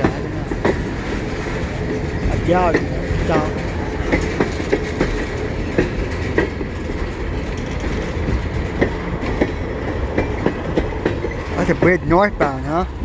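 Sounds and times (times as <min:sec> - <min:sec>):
freight train rumbling: 0:00.0 - 0:13.0
wheels clicking and clanking: 0:00.0 - 0:13.0.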